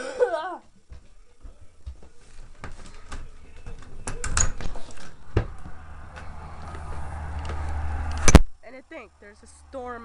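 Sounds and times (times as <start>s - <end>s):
steady rushing noise: 5.2s - 8.5s.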